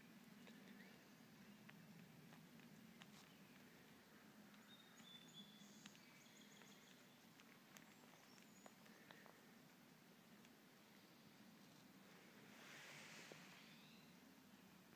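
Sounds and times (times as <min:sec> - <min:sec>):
faint high bird chirps: 0:00.4 - 0:01.7, 0:04.6 - 0:09.4, 0:13.4 - 0:14.2
soft ticks: 0:04.5 - 0:05.2, 0:05.8 - 0:09.4, 0:10.3 - 0:10.6.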